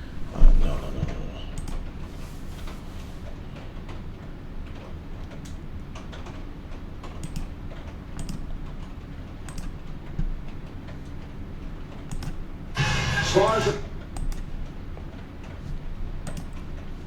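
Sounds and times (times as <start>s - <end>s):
low background hum: 0.0s - 17.0s
typing on computer keyboard: 5.2s - 11.0s, 11.9s - 12.5s, 14.2s - 14.5s, 16.2s - 16.8s.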